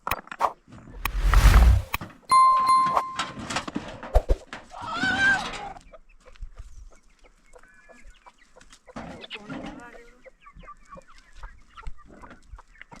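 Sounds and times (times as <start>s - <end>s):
clear ringing note: 2.3s - 3.4s.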